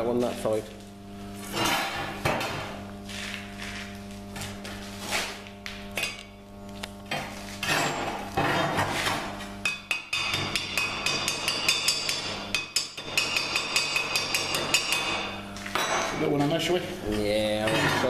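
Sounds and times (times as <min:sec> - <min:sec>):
steady low hum: 0:00.0 - 0:18.0
hammer tapping on metal: 0:09.6 - 0:15.9.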